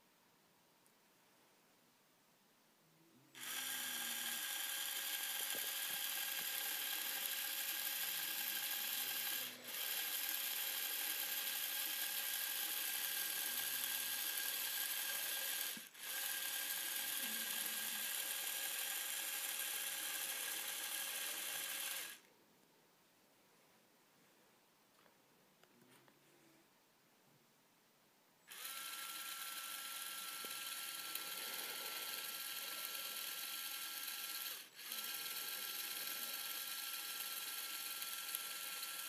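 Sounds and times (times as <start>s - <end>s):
small motor whirring whine: 3.4s - 22.3s, 28.5s - 39.0s.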